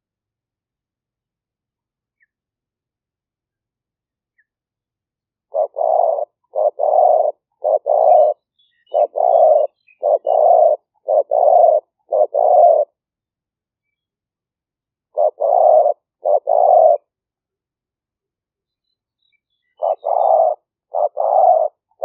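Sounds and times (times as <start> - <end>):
dove cooing: 5.5 - 13.0, 15.1 - 17.1, 19.8 - 22.0.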